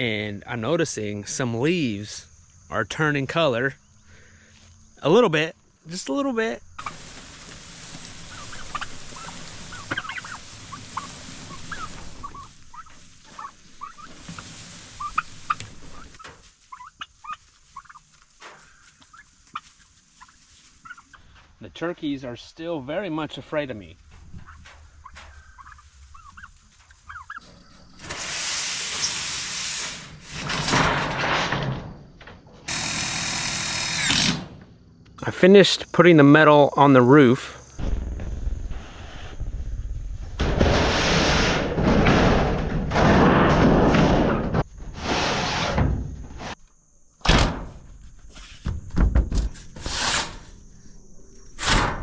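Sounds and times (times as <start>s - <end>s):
loud steady hiss: 5.1s - 16.7s, 28.0s - 30.6s, 35.2s - 38.0s
turkeys calling: 6.7s - 21.5s, 24.1s - 28.3s
loud rushing scraping noise: 40.4s - 45.8s
thuds and knocks: 47.2s - 49.8s.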